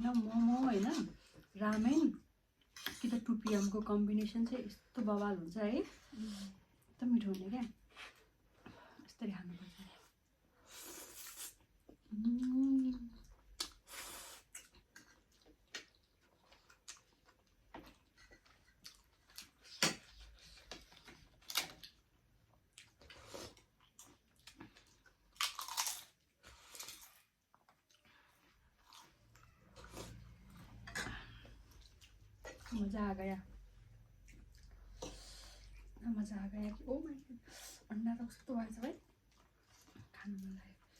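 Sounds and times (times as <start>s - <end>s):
chewing and slurping: 13.0s - 22.0s.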